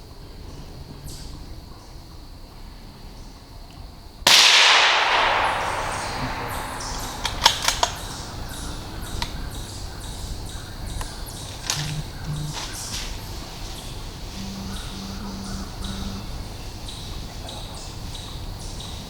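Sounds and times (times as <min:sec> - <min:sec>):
gunshot echoing: 0:04.3 - 0:09.6
sharp clicks: 0:04.6 - 0:09.3, 0:11.6 - 0:12.5.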